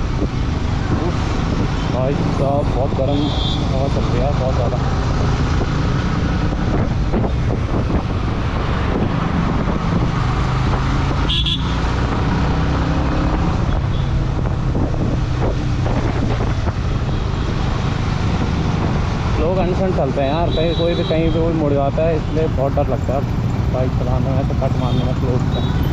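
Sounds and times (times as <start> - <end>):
wind rushing over microphone: 0.0 - 11.3, 11.9 - 20.2.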